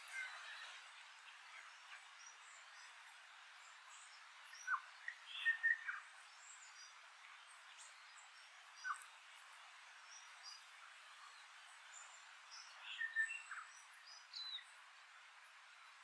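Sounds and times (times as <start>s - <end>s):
faint high bird chirps: 0.0s - 6.9s, 12.5s - 14.8s.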